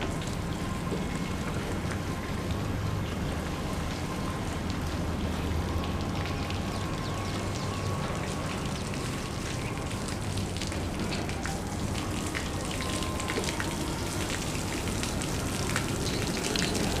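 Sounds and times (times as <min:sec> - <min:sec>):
rain pattering: 0:00.0 - 0:17.0
drip ticks: 0:05.8 - 0:17.0.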